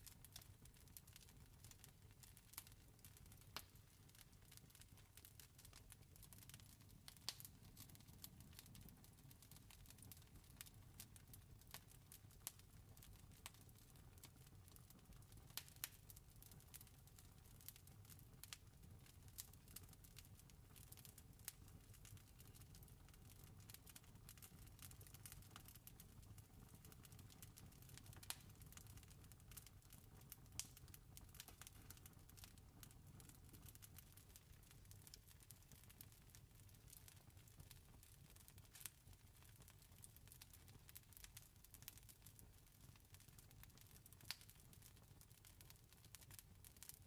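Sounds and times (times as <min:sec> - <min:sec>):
campfire crackling: 0:02.5 - 0:04.9, 0:05.6 - 0:12.6, 0:18.4 - 0:38.9, 0:43.3 - 0:46.9.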